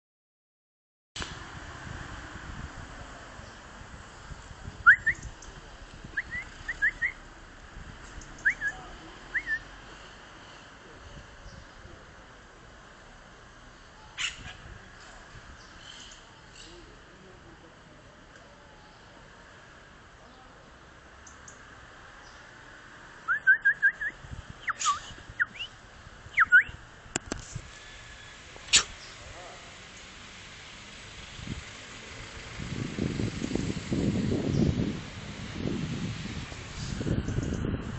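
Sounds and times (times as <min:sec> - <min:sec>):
parrot whistle-like chirps: 0:23.3 - 0:24.1, 0:24.7 - 0:25.7, 0:26.4 - 0:26.8.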